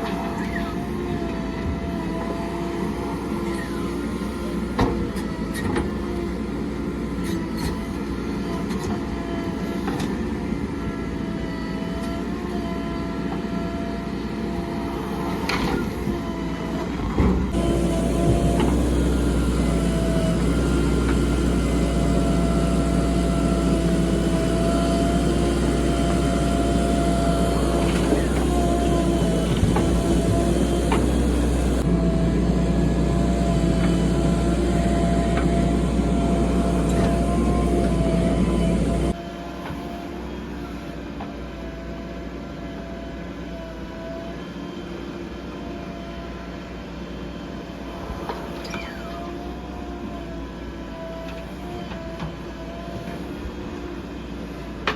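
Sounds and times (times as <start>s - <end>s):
diesel engine running: 14.1s - 39.2s
thin steady whine: 17.6s - 41.0s.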